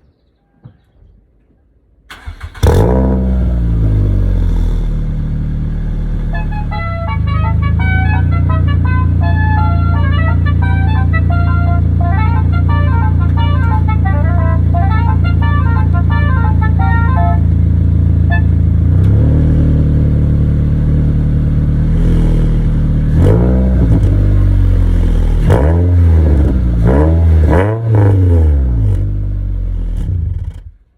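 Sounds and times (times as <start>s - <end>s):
car engine idling: 2.1s - 30.9s
engine revving: 2.1s - 30.9s
reverse-gear electronic melody: 5.0s - 28.8s.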